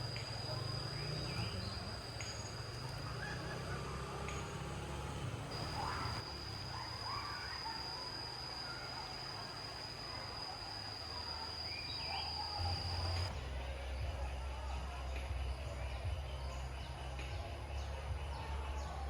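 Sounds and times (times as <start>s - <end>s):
bird chirps: 0.0s - 13.3s
insect high-pitched whine: 0.0s - 19.0s.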